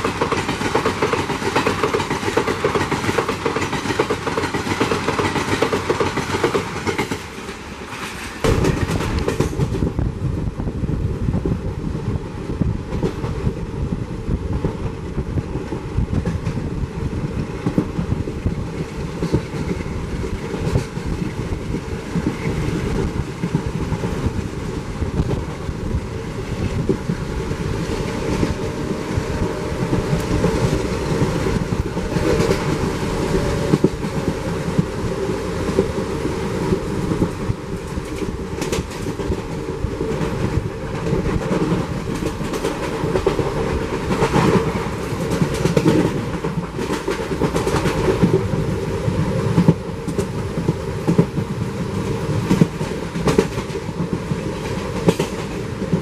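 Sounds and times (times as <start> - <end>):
wheels clicking over rail joints: 0.0 - 9.9, 26.4 - 56.0
train steady rumble: 0.0 - 56.0.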